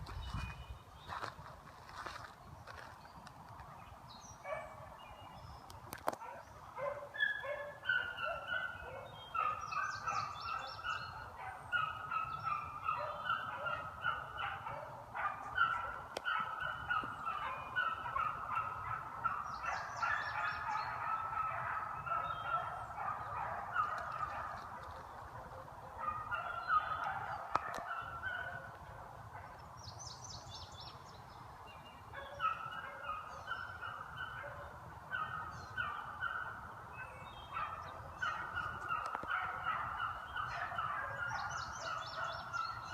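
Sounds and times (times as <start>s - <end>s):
beagles baying: 6.2s - 29.6s, 32.2s - 42.9s.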